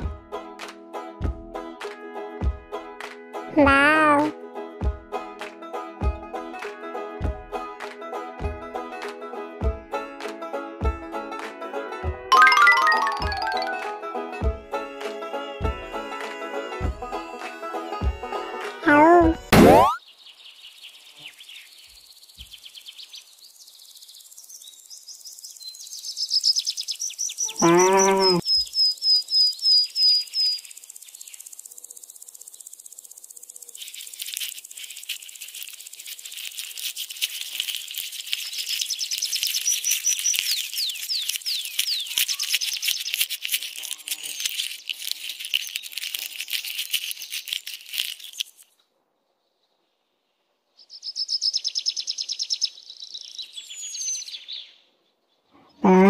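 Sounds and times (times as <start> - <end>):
small birds chirping: 18.9 - 56.0
birds twittering: 20.0 - 33.8
lower bird call: 27.4 - 30.6, 55.6 - 56.0.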